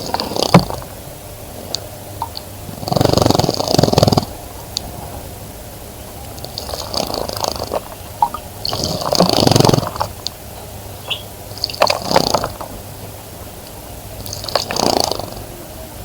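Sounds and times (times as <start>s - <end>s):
animal snoring-like breathing: 0.0s - 0.9s, 2.7s - 4.4s, 6.4s - 7.9s, 8.7s - 10.2s, 11.5s - 12.7s, 14.2s - 15.7s.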